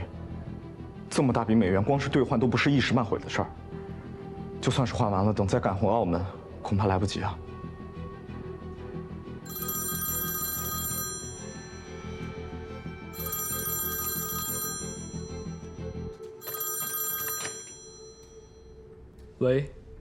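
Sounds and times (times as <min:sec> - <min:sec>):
background music: 0:00.0 - 0:20.0
telephone bell ringing: 0:09.5 - 0:18.8.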